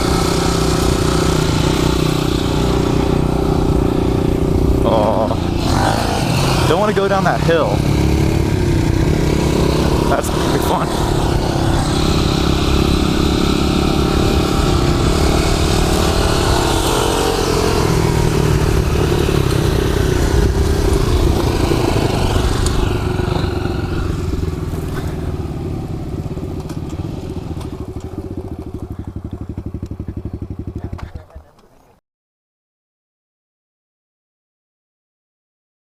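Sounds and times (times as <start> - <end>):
small motorbike engine running: 0.0 - 31.9
wind noise: 7.8 - 25.4.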